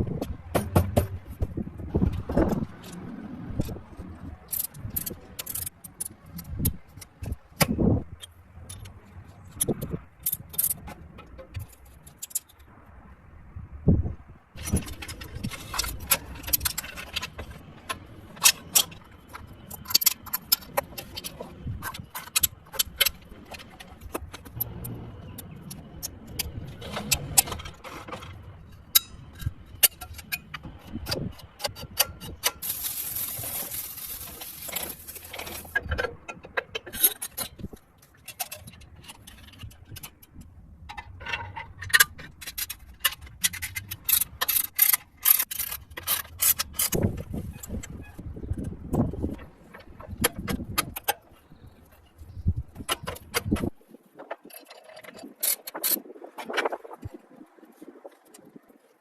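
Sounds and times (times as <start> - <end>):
metallic clicks of tools: 4.5 - 12.7, 14.6 - 48.0.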